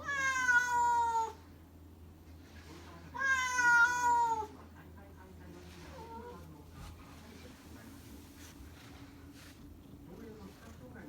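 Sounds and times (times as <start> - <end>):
cat meowing: 0.0 - 1.4, 3.2 - 4.5.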